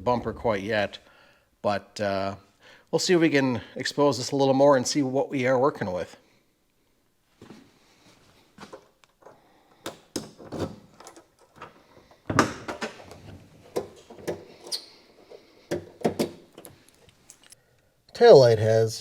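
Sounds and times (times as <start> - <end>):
hand tools and metal parts clanking: 8.6 - 17.6.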